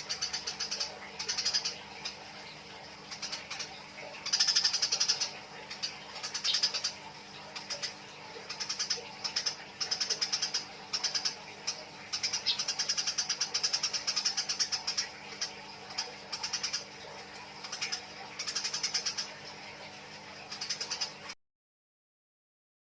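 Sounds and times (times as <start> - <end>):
sparrows chattering harsh chirps: 0.0 - 17.0.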